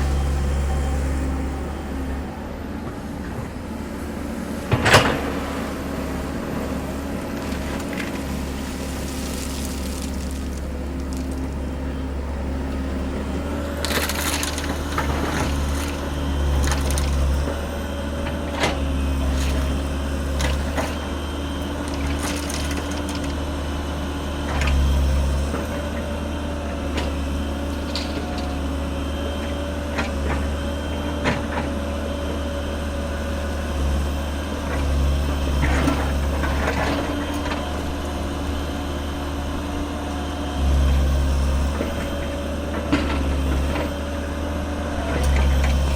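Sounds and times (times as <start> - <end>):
excavator diesel engine: 0.0 - 45.9
crushed stone clattering: 7.4 - 11.6.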